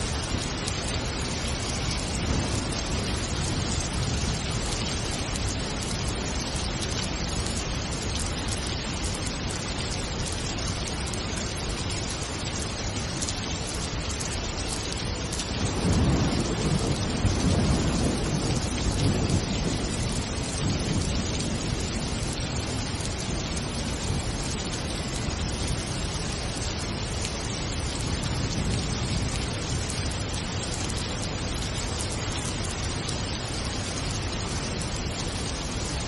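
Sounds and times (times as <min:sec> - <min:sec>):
low rumble of thunder: 0:00.0 - 0:08.6, 0:15.3 - 0:34.4
steady rain falling: 0:00.0 - 0:36.0.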